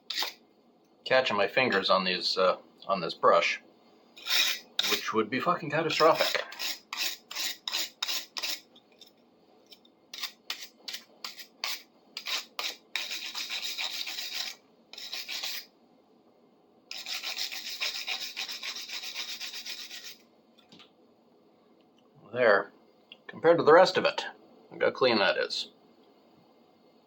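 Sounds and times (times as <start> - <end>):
wire brush scrubbing metal: 0.0 - 0.4, 4.2 - 5.1, 5.9 - 8.7, 10.1 - 15.7, 16.9 - 20.2.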